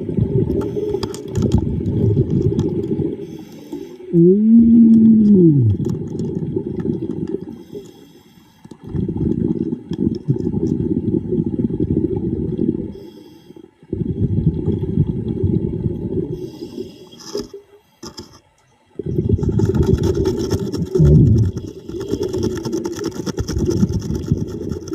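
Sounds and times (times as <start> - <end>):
diver exhaling bubbles underwater: 0.0 - 3.3, 4.1 - 7.8, 8.8 - 13.1, 13.8 - 16.9, 19.0 - 24.9.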